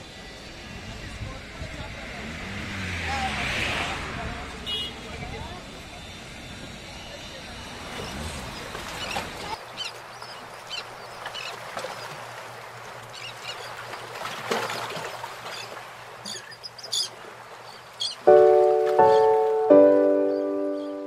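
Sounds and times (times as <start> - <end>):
birds chirping: 6.0 - 21.0
music with sustained notes: 18.3 - 21.0.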